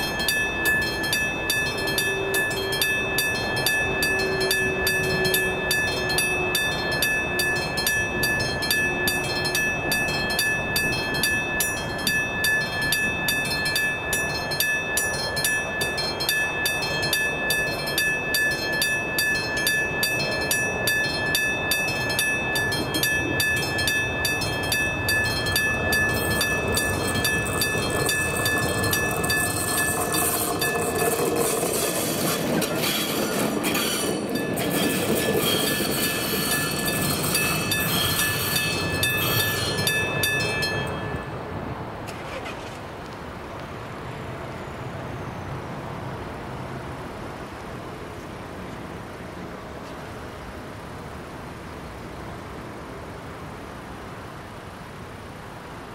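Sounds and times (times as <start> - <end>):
level crossing bell ringing: 0.0 - 41.4
passing train rumble: 0.0 - 55.9.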